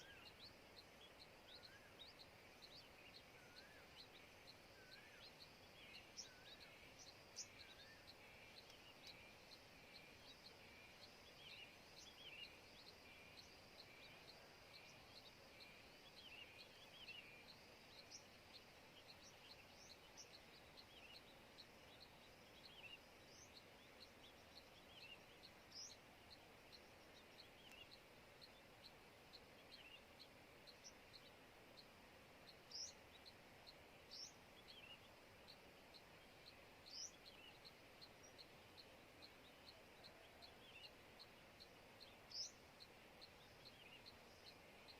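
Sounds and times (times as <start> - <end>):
curving bird calls: 0.0 - 18.3
background hiss: 0.0 - 44.9.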